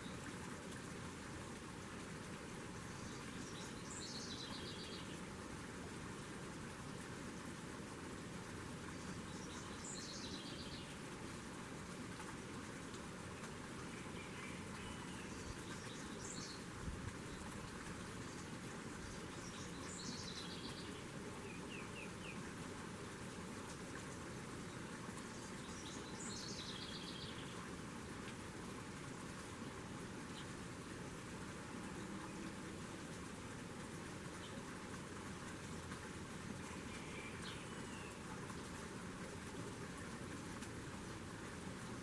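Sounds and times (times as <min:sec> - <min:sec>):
steady background hiss: 0:00.0 - 0:42.0
songbird singing: 0:02.9 - 0:05.2, 0:08.9 - 0:11.0, 0:13.9 - 0:22.5, 0:24.6 - 0:27.7, 0:36.5 - 0:38.6.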